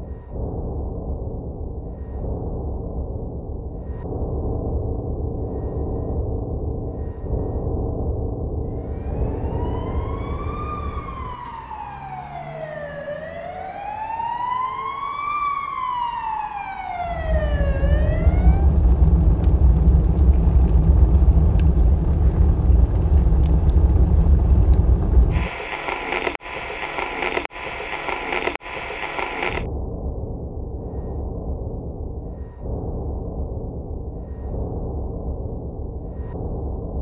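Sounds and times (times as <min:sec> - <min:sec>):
loud low rumble with crackling: 0:00.0 - 0:11.8, 0:16.9 - 0:37.0
siren wailing: 0:08.8 - 0:19.0.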